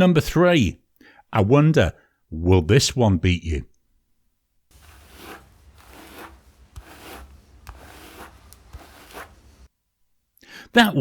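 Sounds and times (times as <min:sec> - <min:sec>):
hairbrush brushing hair: 0:04.7 - 0:09.7.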